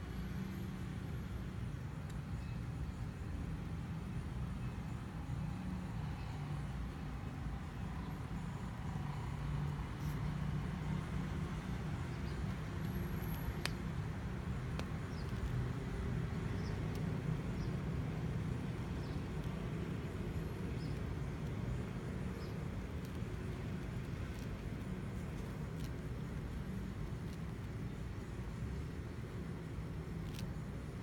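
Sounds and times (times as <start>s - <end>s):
faint clicks: 12.2s - 13.9s.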